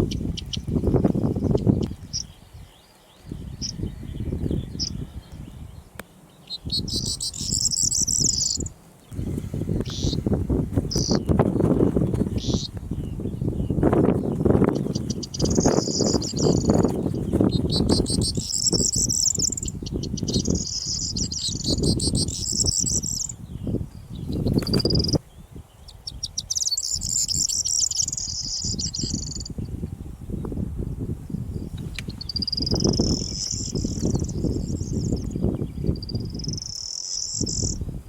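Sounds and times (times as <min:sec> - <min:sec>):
wind buffeting microphone: 0:00.0 - 0:06.0, 0:06.6 - 0:38.0
bird singing jangling song: 0:06.5 - 0:08.7, 0:12.1 - 0:25.2, 0:25.8 - 0:29.7, 0:32.1 - 0:37.8.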